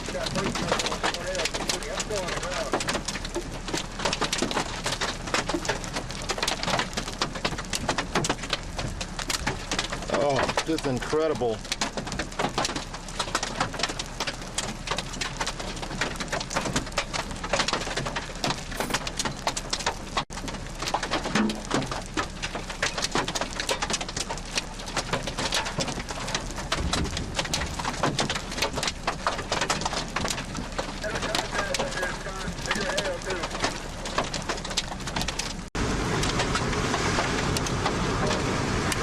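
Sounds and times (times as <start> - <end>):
heavy rain hitting close: 0.0 - 39.0.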